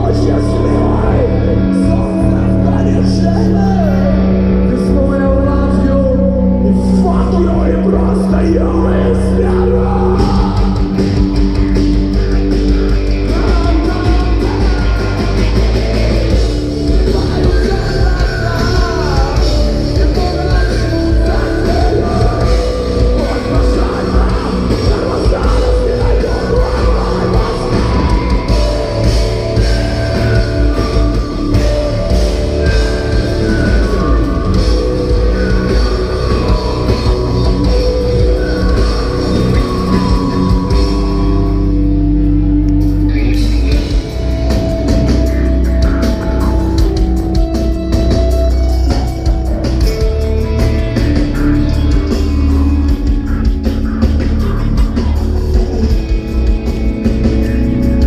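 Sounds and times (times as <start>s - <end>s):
person singing: 0.0s - 11.7s, 12.8s - 41.9s
bass guitar: 0.0s - 58.0s
distorted electric guitars: 0.0s - 58.0s
drums: 0.0s - 58.0s.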